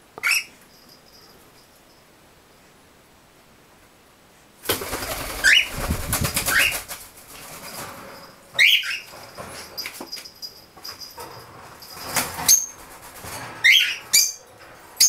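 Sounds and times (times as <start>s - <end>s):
birds wings flapping: 4.6s - 8.0s.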